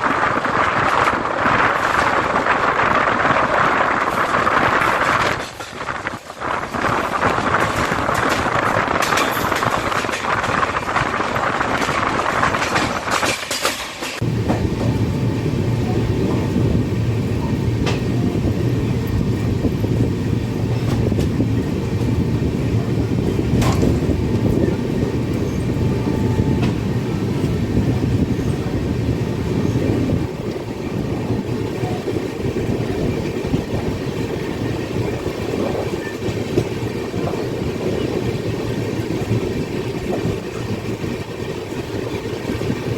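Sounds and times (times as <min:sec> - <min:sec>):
train deep rumble: 0:00.0 - 0:42.9
train hissing rush: 0:00.0 - 0:42.9
train wheels clattering on rails: 0:00.0 - 0:42.9.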